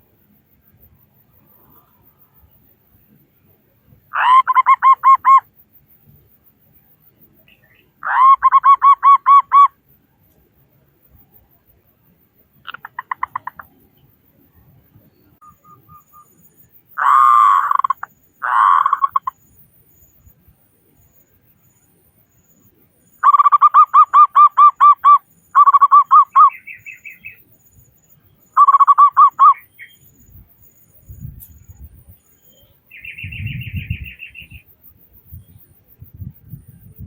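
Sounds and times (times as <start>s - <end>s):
doves cooing: 17.0s - 19.3s.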